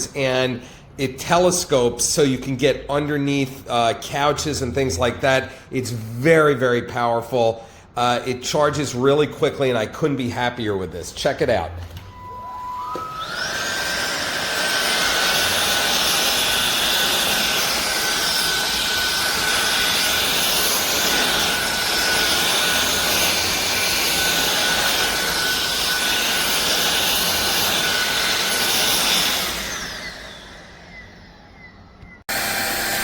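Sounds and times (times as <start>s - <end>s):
vacuum cleaner motor whine: 11.8s - 33.0s.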